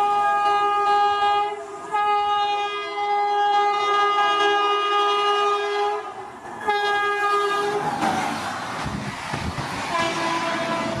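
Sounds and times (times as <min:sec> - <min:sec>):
multi-tone locomotive horn: 0:00.0 - 0:08.0, 0:09.9 - 0:11.0
train coaches rushing by: 0:00.0 - 0:11.0
wheels clattering over rail joints: 0:06.4 - 0:11.0.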